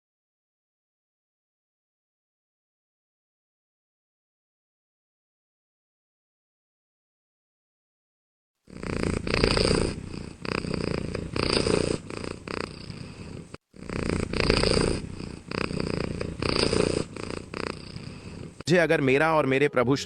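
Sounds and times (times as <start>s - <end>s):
rough animal purring: 8.7s - 18.7s.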